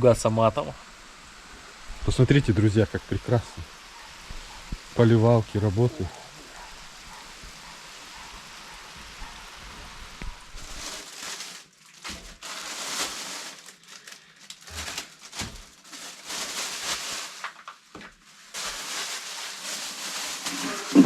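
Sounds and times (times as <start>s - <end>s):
sprinklers spraying water: 0.2s - 10.8s.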